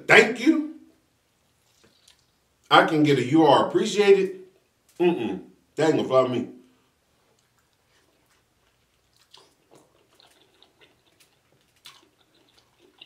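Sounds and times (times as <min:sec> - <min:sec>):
person chewing wetly: 0:01.6 - 0:02.4, 0:07.2 - 0:13.0.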